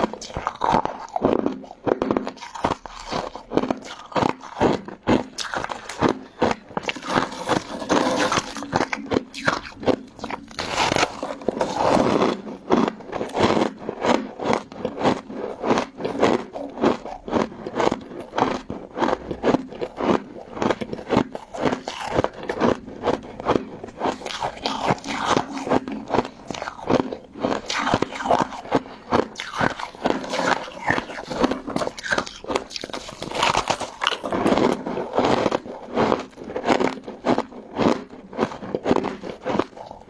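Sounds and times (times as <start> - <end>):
crunching and chewing ice: 0.0 - 40.0.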